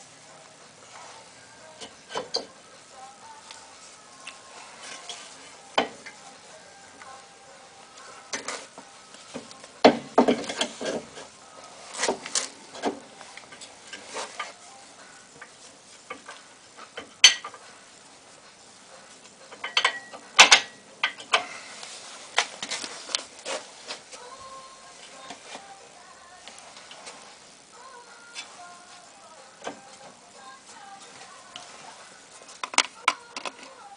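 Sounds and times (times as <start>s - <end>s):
metal tools clinking and scraping: 4.6s - 6.3s, 10.2s - 14.7s, 15.4s - 17.7s, 19.2s - 24.0s.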